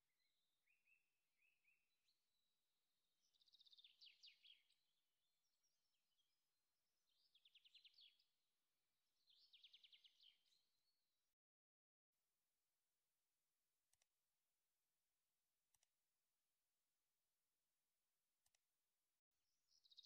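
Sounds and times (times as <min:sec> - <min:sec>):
faint songbird trills: 0:03.2 - 0:06.4, 0:07.0 - 0:08.3, 0:09.2 - 0:11.0, 0:19.5 - 0:20.0.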